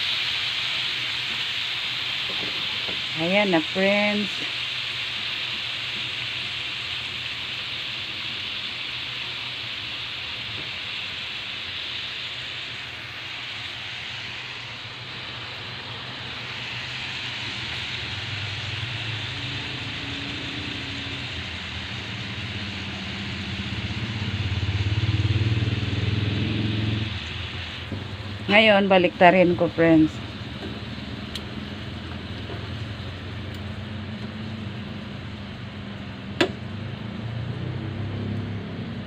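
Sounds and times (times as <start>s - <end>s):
meat sizzling in a pan: 0.0s - 38.9s
low engine drone: 11.4s - 39.0s.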